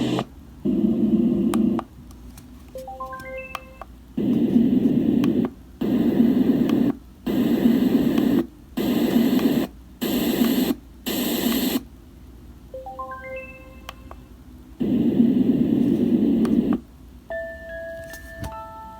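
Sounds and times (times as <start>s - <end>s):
pulsing white noise hiss: 0.0s - 2.0s, 4.0s - 13.4s, 14.3s - 17.3s.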